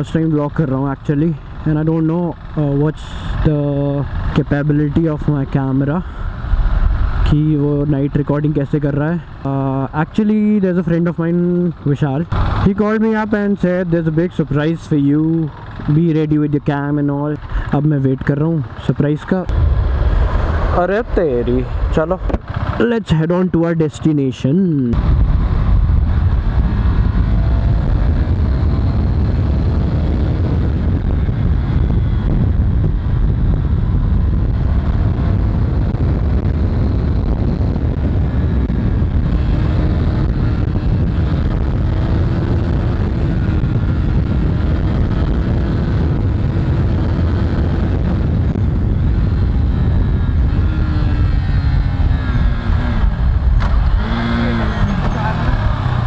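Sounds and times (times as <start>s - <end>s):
wind rush on microphone: 0.0s - 23.8s, 24.9s - 56.0s
motorcycle engine: 0.0s - 56.0s.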